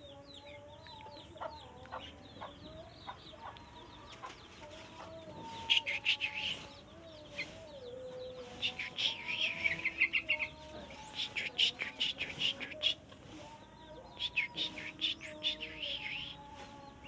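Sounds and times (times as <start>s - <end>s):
bird chirping and chattering: 5.5s - 13.2s, 14.1s - 17.0s.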